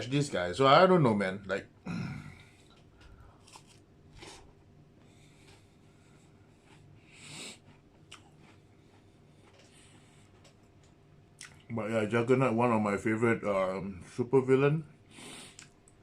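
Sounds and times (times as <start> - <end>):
faint chewing: 2.4 - 11.7, 15.2 - 16.0
biscuit crunches: 3.4 - 4.6.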